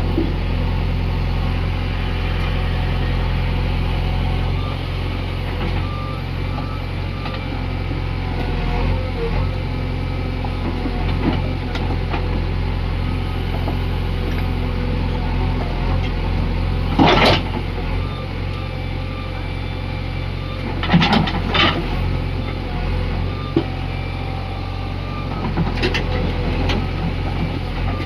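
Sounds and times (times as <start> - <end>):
diesel machinery engine running: 0.0 - 28.0.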